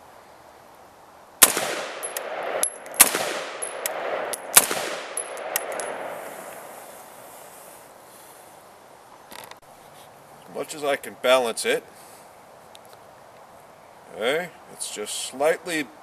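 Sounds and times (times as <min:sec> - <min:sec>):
gunshots with rolling echo: 0:01.4 - 0:07.0.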